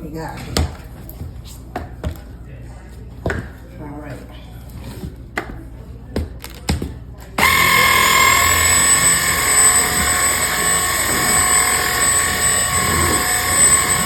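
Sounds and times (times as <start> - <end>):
vacuum motor whine: 7.4 - 14.0.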